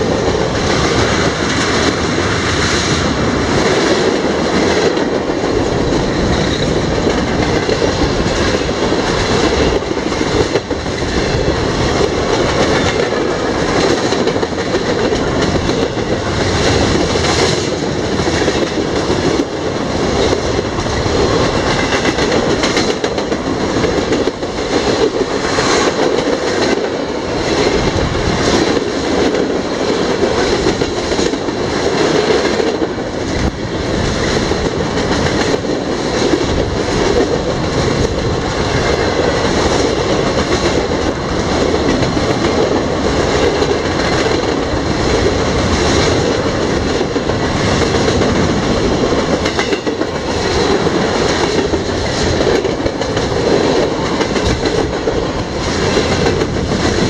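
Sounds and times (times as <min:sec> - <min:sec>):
freight train cars rolling past: 0:00.0 - 0:57.0
wheels clacking on rails: 0:00.0 - 0:57.0.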